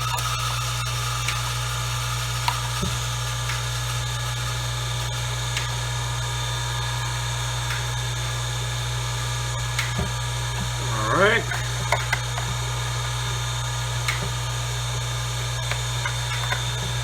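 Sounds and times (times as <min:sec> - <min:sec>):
hiss: 0:00.0 - 0:08.4.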